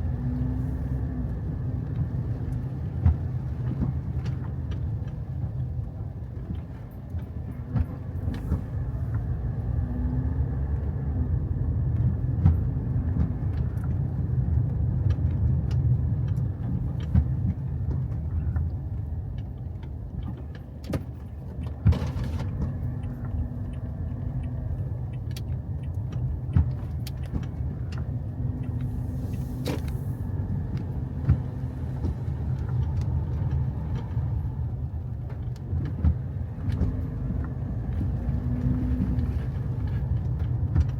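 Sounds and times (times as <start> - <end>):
car engine and road noise rumble: 0.0 - 40.9
sharp clicks and knocks: 11.9 - 40.9.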